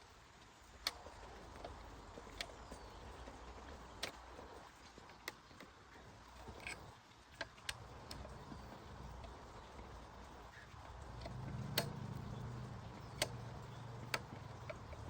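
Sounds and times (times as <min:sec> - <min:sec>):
small tools clicking and tapping: 0:00.8 - 0:15.0
faint low rumble: 0:10.9 - 0:15.0.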